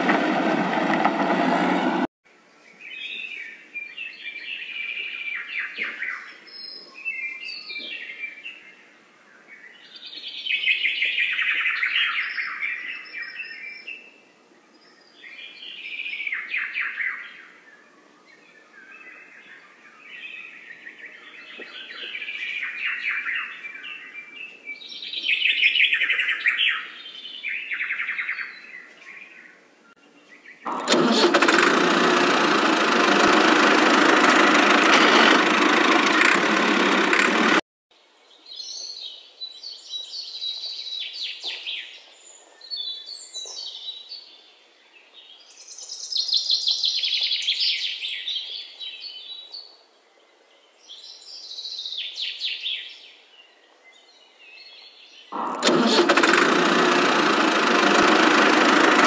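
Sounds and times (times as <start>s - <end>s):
loud steady engine: 0.0s - 2.1s, 30.7s - 37.6s, 55.4s - 59.0s.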